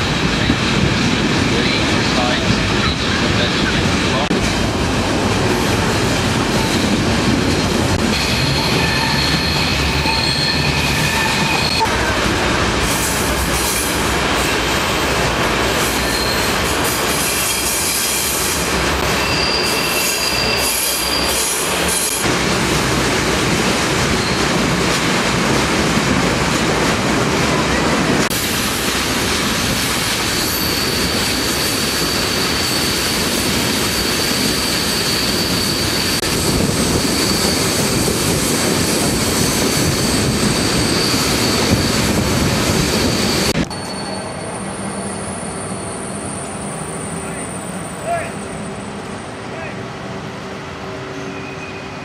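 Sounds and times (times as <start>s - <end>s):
train wheels rumbling: 0.0s - 49.4s
high-pitched wheel squeal: 8.2s - 11.9s, 19.1s - 22.2s, 33.8s - 36.2s, 51.1s - 52.0s.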